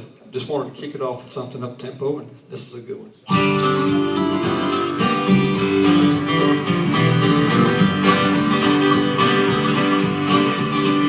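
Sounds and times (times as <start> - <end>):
country-gospel band playing: 3.3 - 11.0
strummed acoustic guitar: 3.3 - 11.0.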